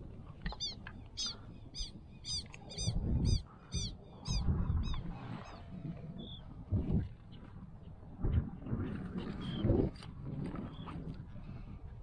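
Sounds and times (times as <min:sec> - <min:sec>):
bird calling: 0:00.5 - 0:06.5.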